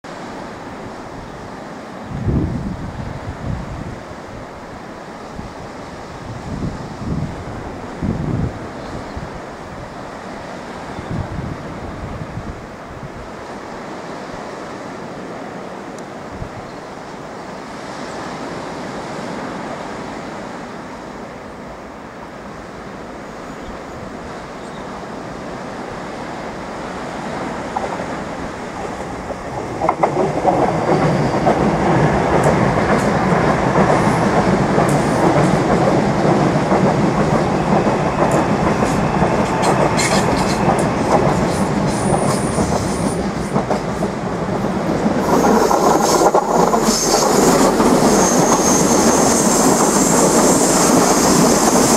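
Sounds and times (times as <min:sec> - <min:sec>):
electric train passing: 0:00.1 - 0:51.9
wheels clacking over rail joints: 0:27.2 - 0:51.9.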